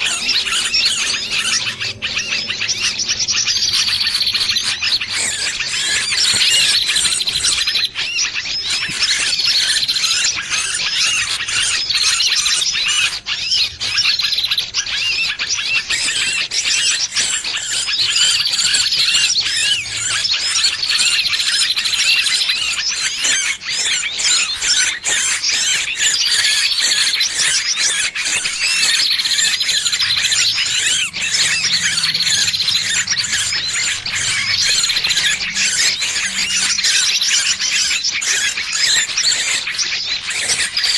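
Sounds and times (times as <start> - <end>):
bird distress squeals and chirps: 0.0 - 40.9.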